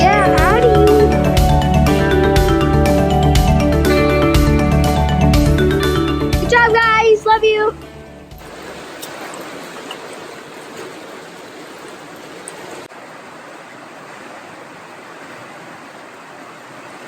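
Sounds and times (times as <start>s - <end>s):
stream water rushing: 0.0s - 3.4s, 8.3s - 17.0s.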